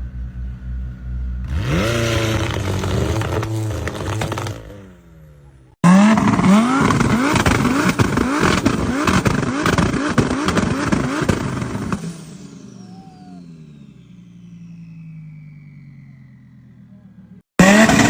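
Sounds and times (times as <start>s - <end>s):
car engine revving in blips: 1.4s - 18.0s
exhaust bangs and pops: 1.5s - 16.9s.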